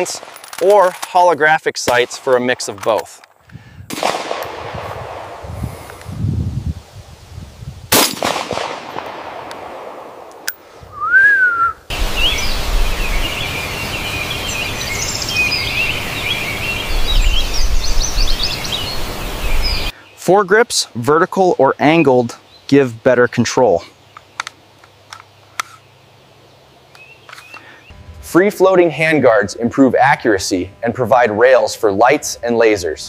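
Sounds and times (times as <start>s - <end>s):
gunshot: 3.9s - 5.3s, 7.9s - 10.2s
whistled note: 10.9s - 12.5s
songbirds chirping and singing: 12.0s - 28.0s.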